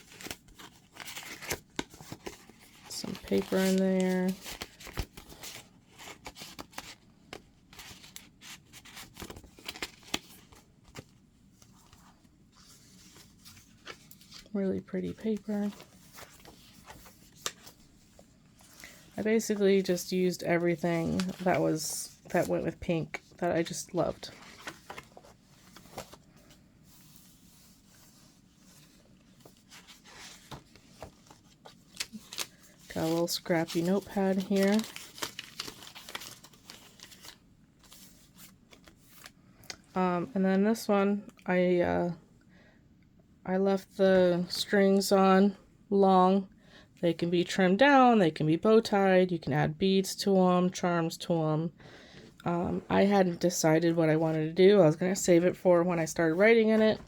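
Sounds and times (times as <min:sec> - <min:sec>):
paper pages rustling and crinkling: 0:00.0 - 0:39.9, 0:55.6 - 0:57.0.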